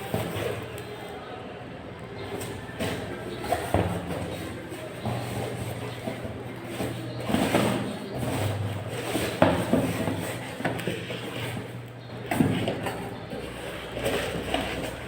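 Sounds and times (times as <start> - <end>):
rustling: 2.2 - 15.0
sharp knocks and clatters: 2.2 - 15.0.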